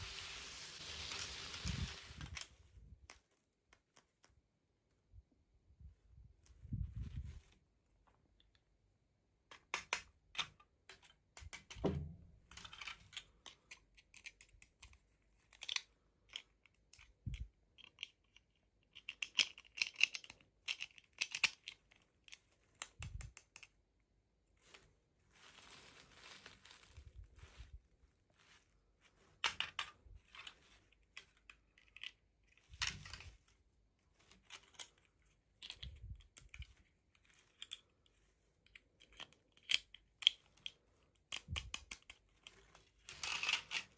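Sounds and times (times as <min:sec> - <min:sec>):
packaging rustle: 0:00.0 - 0:02.5, 0:24.6 - 0:29.4
plastic packaging crinkling: 0:00.0 - 0:02.5, 0:24.6 - 0:29.4.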